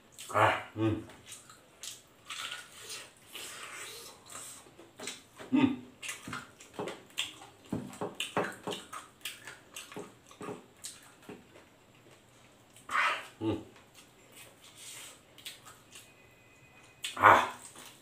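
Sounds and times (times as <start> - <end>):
wet chewing and mouth smacking: 1.2 - 5.3, 6.0 - 12.9, 13.8 - 16.1.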